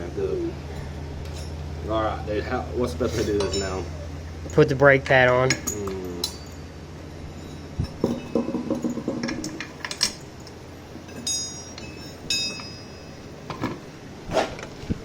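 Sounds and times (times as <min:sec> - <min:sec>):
small metal parts clinking: 0:00.8 - 0:01.6, 0:04.4 - 0:06.6, 0:07.4 - 0:13.7
ringing metal clinks: 0:00.8 - 0:01.7, 0:03.4 - 0:06.7, 0:07.3 - 0:13.5.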